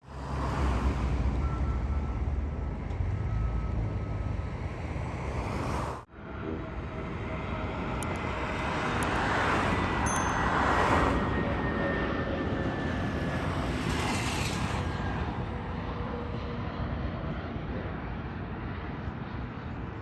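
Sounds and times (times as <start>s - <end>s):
jet engines rumbling: 2.5s - 20.0s
high jet whine: 6.0s - 18.0s.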